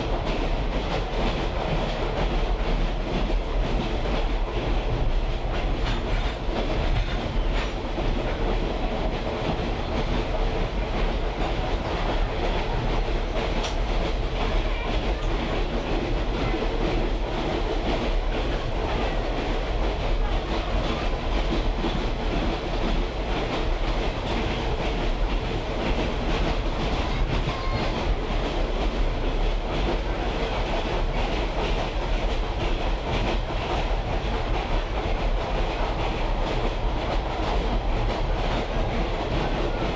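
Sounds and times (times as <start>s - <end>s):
train wheels rumbling on track: 0.0s - 39.9s
clicks from rail joints: 13.4s - 14.1s.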